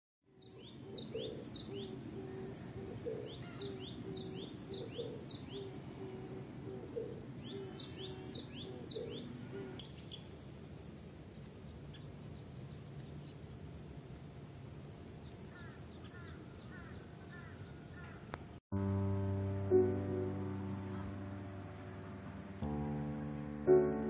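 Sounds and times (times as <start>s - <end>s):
bird whistling: 0.4s - 10.2s
lower repeated bird note: 0.4s - 10.2s.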